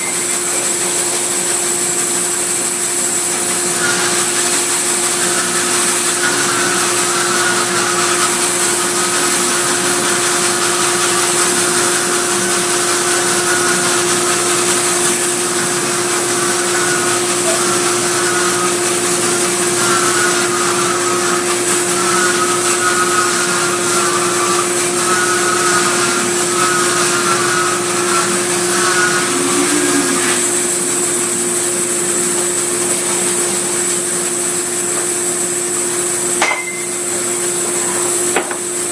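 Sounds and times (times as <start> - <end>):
sawmill humming and hissing: 0.0 - 38.9
wavering high note: 25.0 - 31.6.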